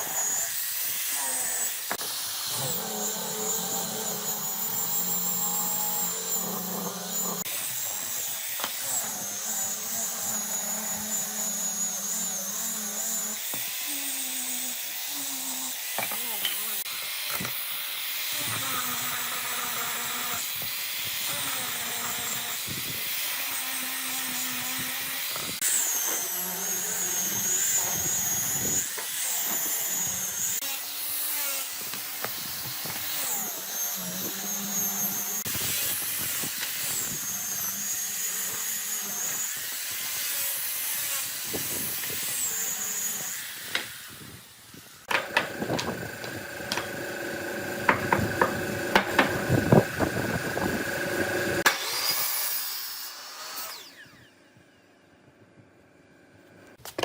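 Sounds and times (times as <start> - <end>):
power tool hissing: 0.0 - 19.4, 24.4 - 54.2.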